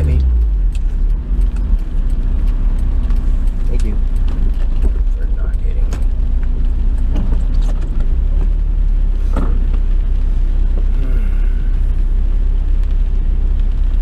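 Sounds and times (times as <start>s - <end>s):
light clicks and knocks: 0.0s - 8.6s
engine and road noise drone: 0.0s - 14.0s.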